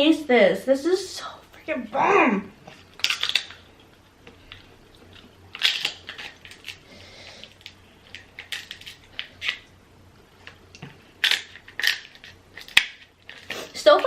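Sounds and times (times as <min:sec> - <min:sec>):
seafood shells cracking: 0:02.8 - 0:06.8, 0:07.4 - 0:09.8, 0:10.4 - 0:13.6.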